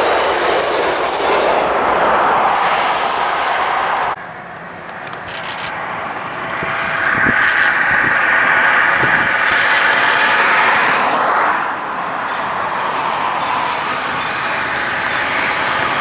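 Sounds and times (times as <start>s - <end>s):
freight train wheels on rail: 0.0s - 16.0s.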